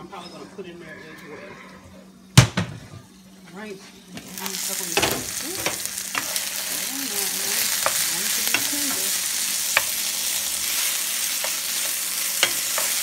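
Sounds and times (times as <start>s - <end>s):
chicken sizzling in a skillet: 4.2s - 13.0s
wooden spoon scraping a pan: 6.1s - 13.0s.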